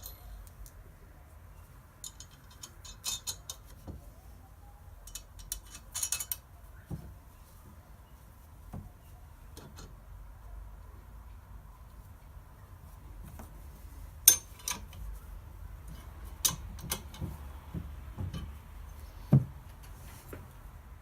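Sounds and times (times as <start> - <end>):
metal parts and tools clinking: 0.0 - 0.7, 2.0 - 3.9, 5.0 - 6.5, 14.2 - 15.1, 15.9 - 17.4
soft dull knocks: 19.2 - 20.5.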